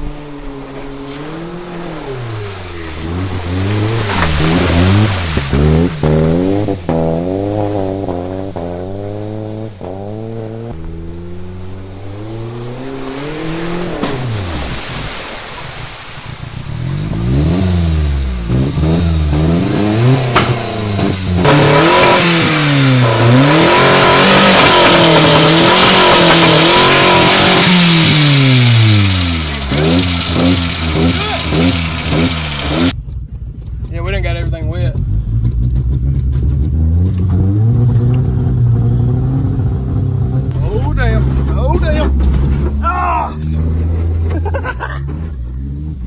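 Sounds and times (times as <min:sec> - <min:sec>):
mud and water spraying: 0:00.0 - 0:33.0
car engine revving: 0:00.0 - 0:46.0.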